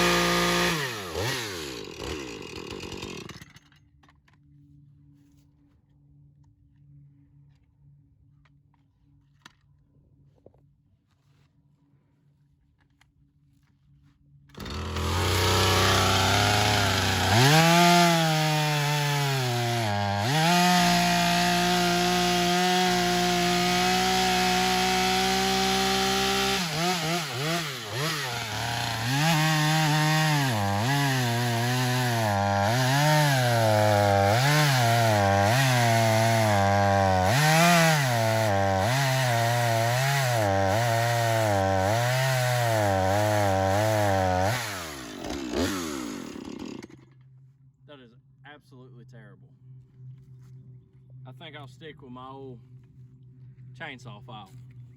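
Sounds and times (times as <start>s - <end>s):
chainsaw engine running: 0.0s - 3.7s, 14.6s - 47.2s.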